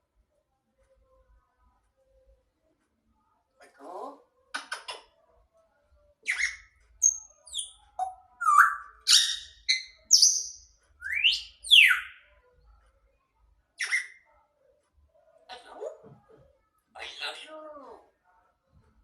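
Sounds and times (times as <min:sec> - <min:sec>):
parrot whistling and chirping: 0:06.2 - 0:12.2, 0:13.8 - 0:14.2.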